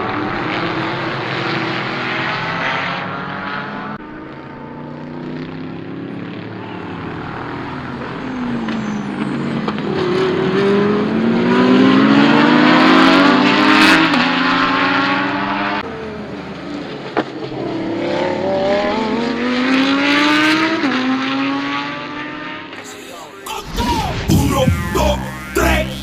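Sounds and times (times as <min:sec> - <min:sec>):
car engine accelerating hard: 0:00.0 - 0:22.8
exhaust crack: 0:15.8 - 0:18.9.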